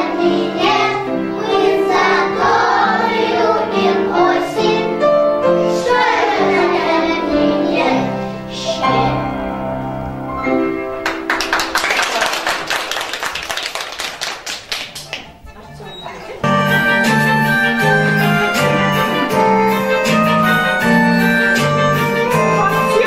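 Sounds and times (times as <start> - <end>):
children singing: 0.0 - 9.7, 17.3 - 23.0
musical accompaniment: 0.0 - 13.6, 15.0 - 23.0
people clapping: 11.0 - 15.6.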